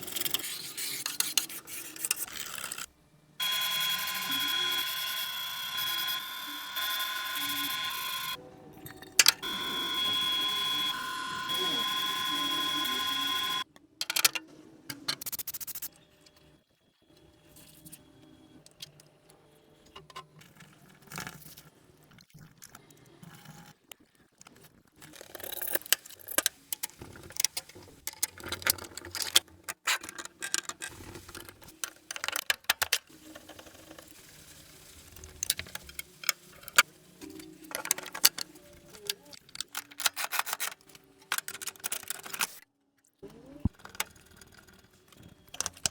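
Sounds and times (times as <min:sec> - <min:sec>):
cash register mechanism clacking: 0:09.2 - 0:13.6
steady electronic tone: 0:09.4 - 0:13.6.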